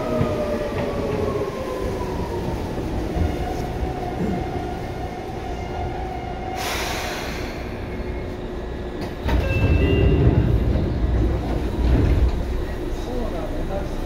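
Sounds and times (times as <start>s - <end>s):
train wheels and motors rumbling: 0.0s - 14.0s.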